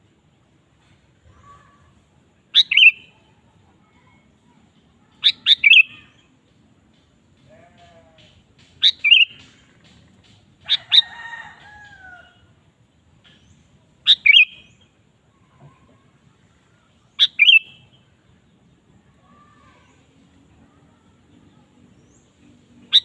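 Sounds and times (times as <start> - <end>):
bird chirping phrases: 1.3 - 6.4, 7.4 - 10.0, 13.3 - 23.0
low gliding bird call: 2.5 - 3.3, 5.1 - 6.3, 8.8 - 9.4, 14.0 - 14.8, 17.1 - 18.0.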